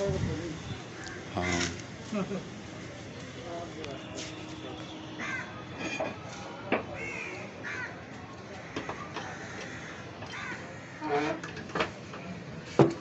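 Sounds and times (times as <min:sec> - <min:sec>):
bird cawing: 0:05.2 - 0:05.5, 0:07.0 - 0:11.1.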